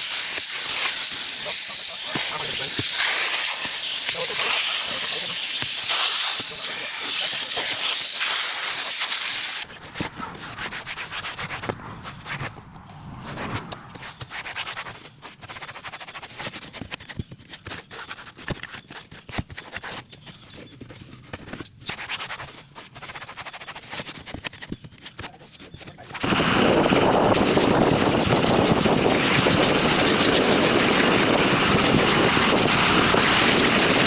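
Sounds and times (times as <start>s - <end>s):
loud spray hiss: 0.0s - 9.6s, 26.2s - 34.0s
brush scrubbing a surface: 0.0s - 12.6s, 13.3s - 16.9s, 21.9s - 24.5s.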